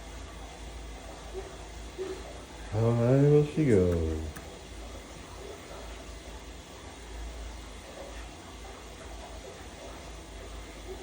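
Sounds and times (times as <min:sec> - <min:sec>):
furnace blower humming: 0:00.0 - 0:08.6.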